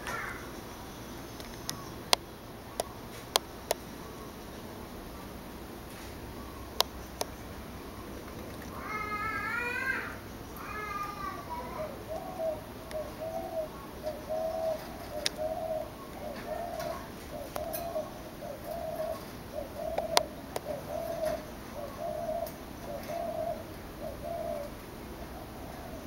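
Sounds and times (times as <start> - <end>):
bird cooing: 0.0 - 0.5, 6.2 - 26.0
claws clicking on cage bars: 14.8 - 18.0.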